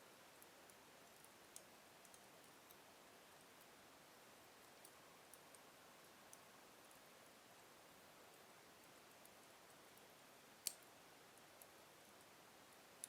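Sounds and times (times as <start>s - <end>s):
wood fire crackling: 8.8s - 12.3s.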